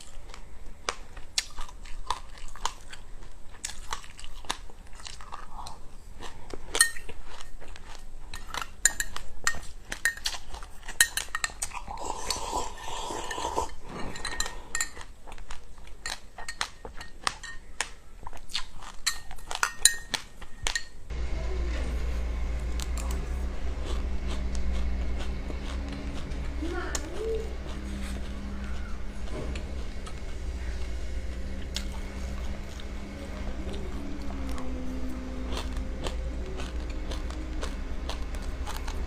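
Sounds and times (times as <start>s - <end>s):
cutlery clinking against dish: 8.3s - 11.8s, 13.2s - 15.1s, 16.0s - 17.7s, 19.0s - 21.0s
steady low hum: 21.0s - 39.0s.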